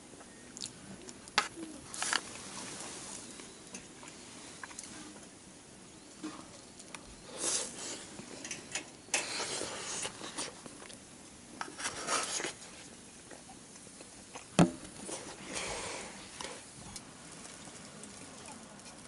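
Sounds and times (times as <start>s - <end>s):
rustling and scraping handling noises: 1.4s - 5.2s, 11.6s - 13.5s.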